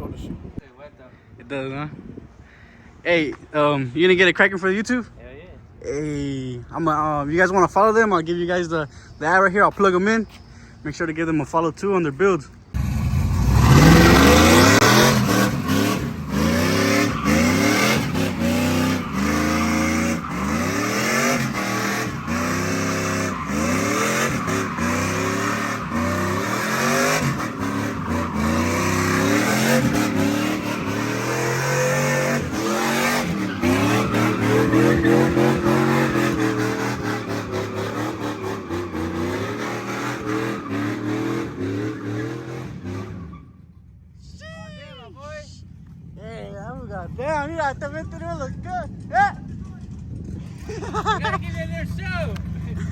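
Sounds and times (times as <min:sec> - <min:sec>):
car engine revving hard: 0:12.8 - 0:43.3
tires squealing: 0:12.8 - 0:43.8.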